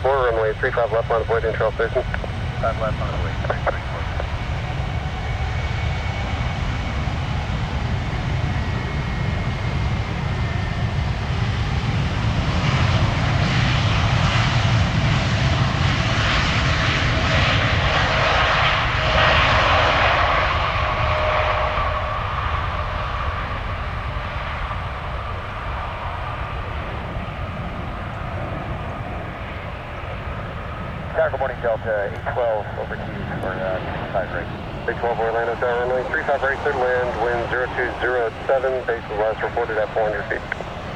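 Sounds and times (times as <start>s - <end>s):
jet engines passing: 0.0s - 40.9s.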